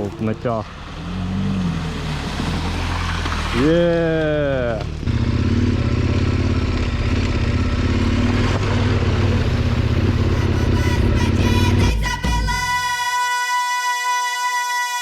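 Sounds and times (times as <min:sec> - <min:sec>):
motorcycle engine idling: 0:04.4 - 0:12.4.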